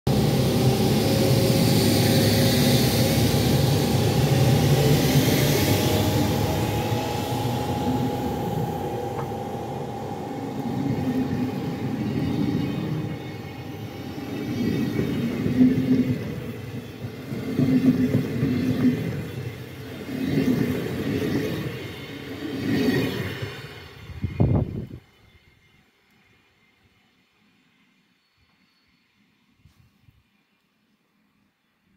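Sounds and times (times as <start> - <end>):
cooling blowers whining: 0.1 - 19.7
rail rumble: 0.1 - 25.8.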